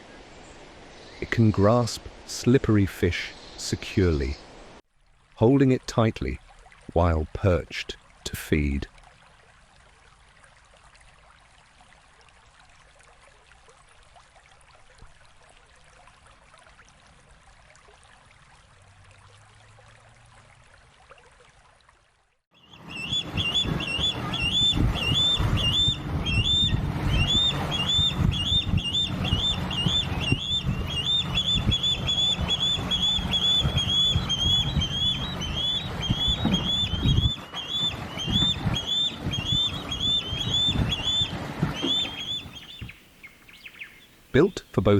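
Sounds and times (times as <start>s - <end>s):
faint ambient hiss: 0.0s - 4.8s, 42.0s - 44.9s
bird chirping: 22.6s - 44.9s.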